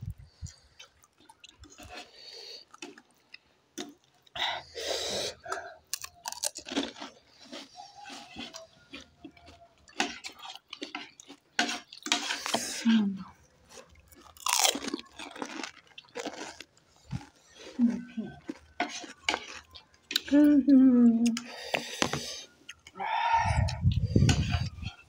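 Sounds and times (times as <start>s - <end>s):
crisp shells crunched and chewed: 0.0s - 4.4s, 5.3s - 12.6s, 13.3s - 20.5s.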